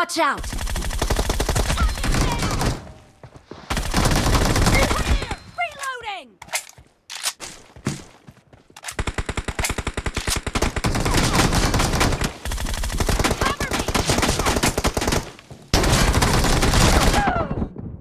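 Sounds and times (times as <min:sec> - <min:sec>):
video game automatic gunfire: 0:00.4 - 0:02.8, 0:03.7 - 0:05.3, 0:09.0 - 0:17.3.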